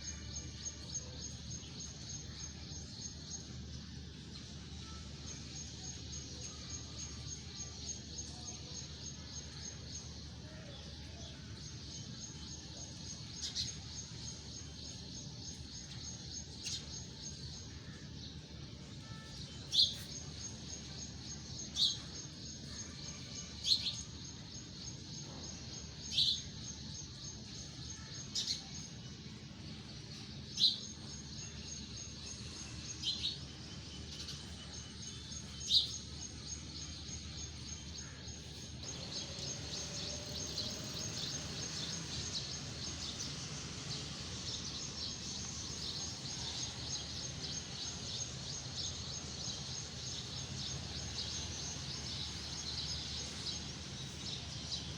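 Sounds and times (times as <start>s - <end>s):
continuous high chirring: 0.0s - 54.9s
bird chirping: 38.0s - 54.9s.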